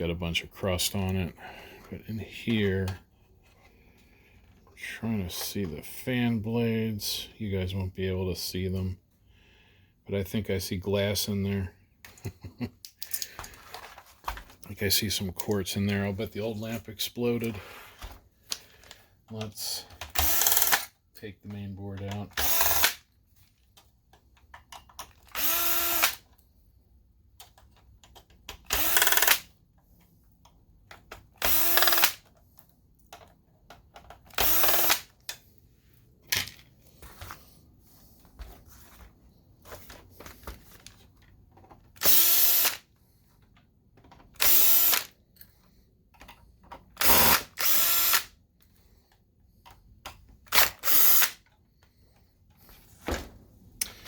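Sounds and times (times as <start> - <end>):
handling noises: 13.0 - 20.2, 35.1 - 42.0
electric screwdriver whirring: 20.1 - 20.9, 22.4 - 23.0, 25.3 - 26.2, 28.7 - 29.4, 31.4 - 32.2, 34.3 - 35.1, 42.0 - 42.8, 44.4 - 45.1, 47.0 - 48.3, 50.5 - 51.4.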